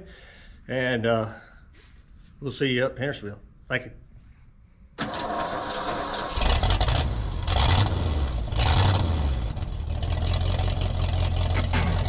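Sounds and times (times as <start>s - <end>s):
vehicle engine rumbling: 6.4s - 12.0s.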